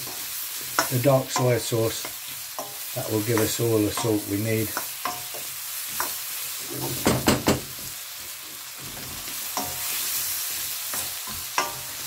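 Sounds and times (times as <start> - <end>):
spatula clacking against wok: 0.0 - 6.2, 10.9 - 12.0
mushrooms sizzling in a wok: 0.0 - 12.0.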